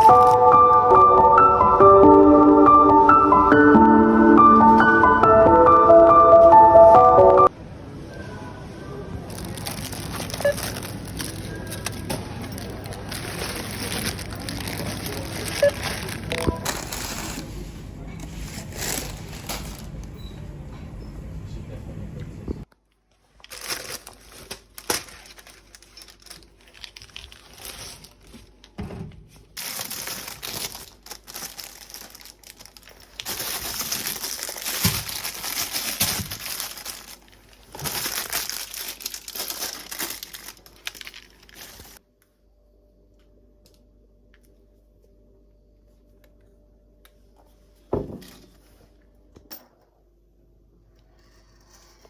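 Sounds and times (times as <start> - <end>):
packaging crinkling and tearing: 9.3 - 17.6, 18.3 - 20.1, 23.3 - 28.8, 29.6 - 42.0.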